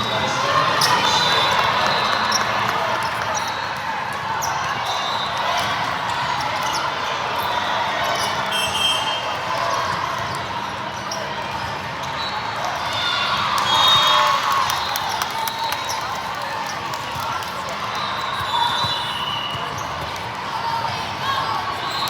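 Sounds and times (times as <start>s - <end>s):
murmur of spectator chatter: 0.0s - 22.0s
shoes squeaking on court: 18.0s - 20.2s.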